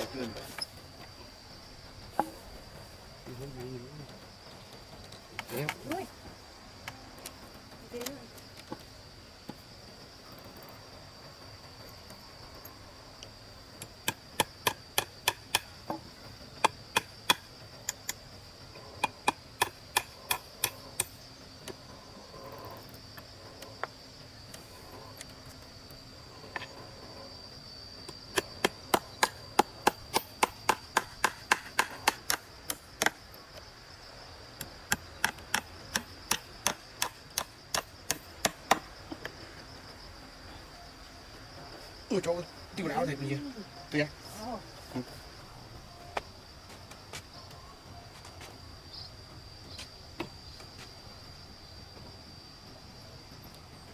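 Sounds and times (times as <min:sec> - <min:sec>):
high insect drone: 0:00.0 - 0:53.9
tool striking wood: 0:02.2 - 0:02.4, 0:14.0 - 0:16.0, 0:16.6 - 0:17.5, 0:19.0 - 0:21.2, 0:28.3 - 0:33.2, 0:34.8 - 0:39.3.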